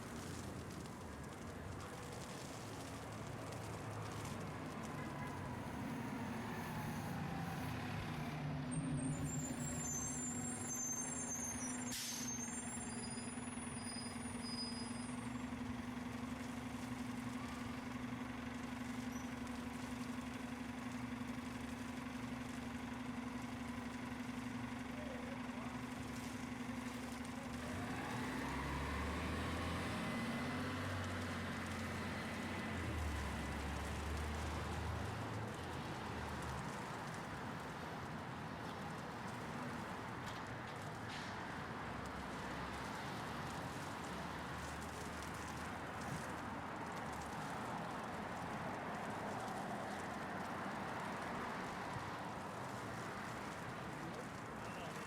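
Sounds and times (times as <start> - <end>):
background traffic rumble: 0.0 - 55.0
heavy vehicle engine idling: 0.1 - 55.0
sharp air hiss: 10.8 - 12.6.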